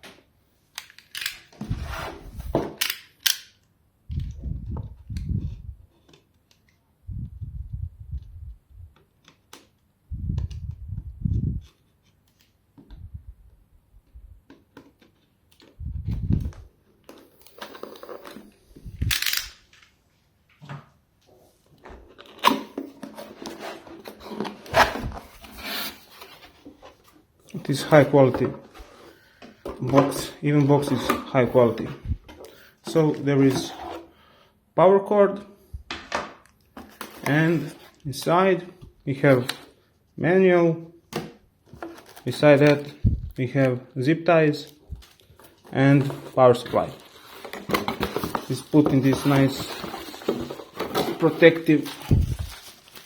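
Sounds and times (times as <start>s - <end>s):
rustling: 44.9s - 53.0s.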